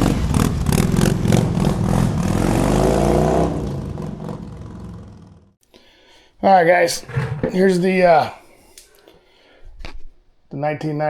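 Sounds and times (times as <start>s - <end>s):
vehicle engine revving: 0.0s - 5.3s.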